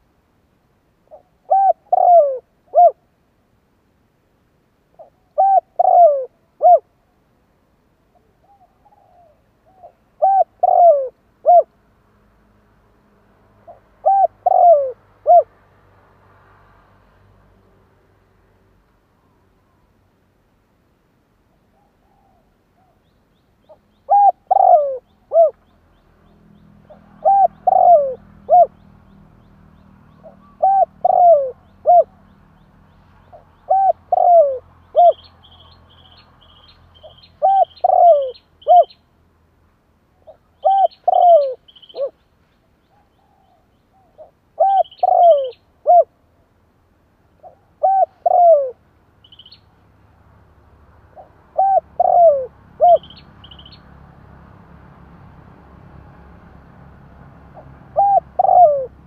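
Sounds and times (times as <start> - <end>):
dove cooing: 1.1 - 3.0, 5.0 - 6.9, 8.2 - 11.7, 13.7 - 15.5, 23.7 - 25.6, 26.9 - 28.8, 30.1 - 32.4, 33.3 - 35.6, 37.1 - 39.0, 40.2 - 42.2, 42.9 - 46.1, 47.4 - 48.8, 51.1 - 53.2, 57.6 - 59.0
small bird chirping faintly: 21.5 - 39.2, 40.1 - 46.1, 49.2 - 49.8.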